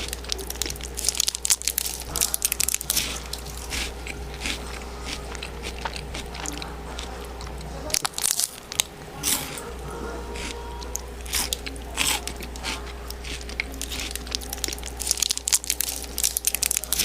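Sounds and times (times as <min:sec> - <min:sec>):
chewing food: 0:00.0 - 0:17.0.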